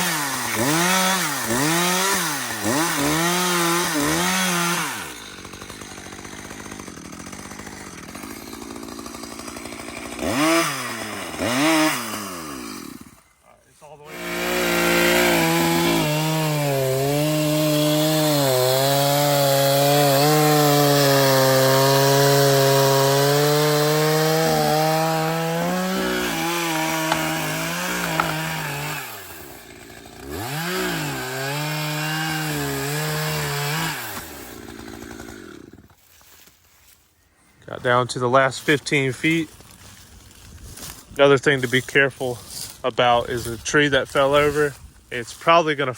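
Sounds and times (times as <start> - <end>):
chainsaw cutting a log: 0.0 - 36.1.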